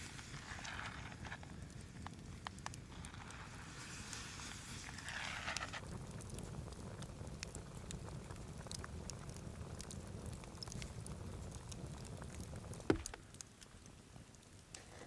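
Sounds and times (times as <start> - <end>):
rustling hiss: 0.0 - 6.0
campfire crackling: 0.0 - 15.0
sharp pops: 12.8 - 13.4.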